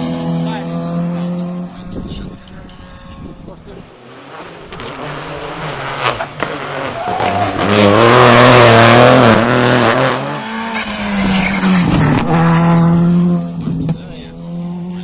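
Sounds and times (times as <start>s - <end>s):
rally car engine revving: 0.0s - 15.0s
tyre squeal: 10.7s - 12.0s.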